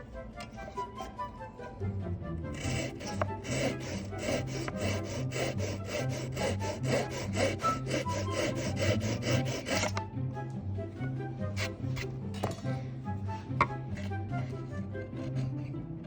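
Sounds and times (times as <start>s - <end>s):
background music: 0.0s - 16.0s
saw cutting wood: 2.5s - 10.0s, 11.5s - 12.6s, 13.6s - 15.7s.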